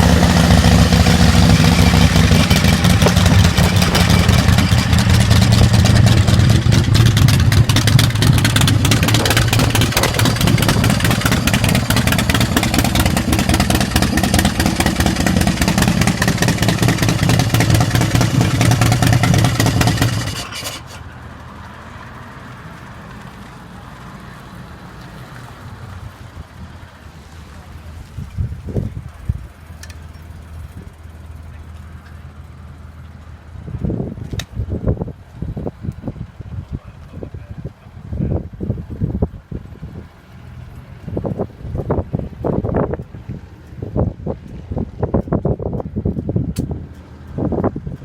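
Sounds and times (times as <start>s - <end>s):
motorcycle engine running: 0.0s - 21.8s, 26.4s - 48.0s.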